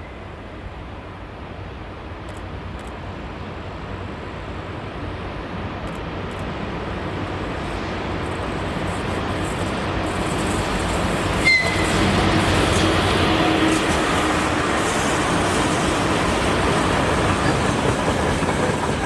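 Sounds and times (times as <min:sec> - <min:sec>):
train rumbling: 0:03.9 - 0:19.0.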